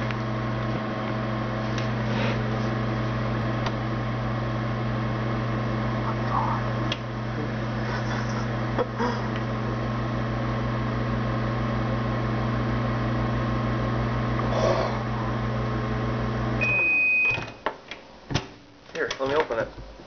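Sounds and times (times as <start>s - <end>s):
microwave oven humming: 0.0s - 20.0s
microwave long beep: 15.4s - 17.7s.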